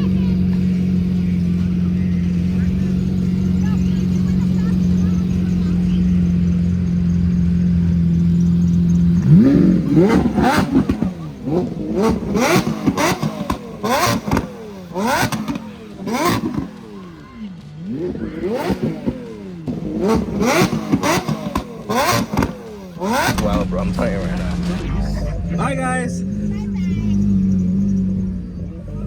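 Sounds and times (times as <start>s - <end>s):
car engine revving: 0.0s - 29.0s
exhaust cracks: 17.6s - 29.0s.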